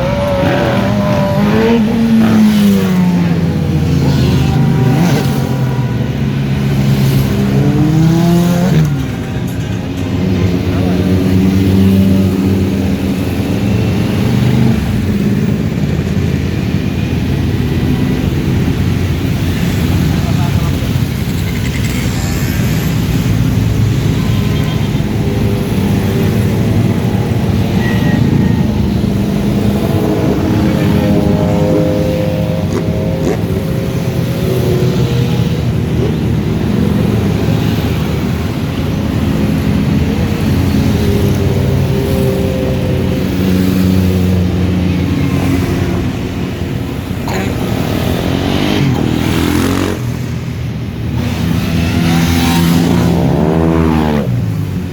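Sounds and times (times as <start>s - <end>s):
motorcycle engines rumbling: 0.0s - 54.9s
road and wind noise: 0.0s - 54.9s.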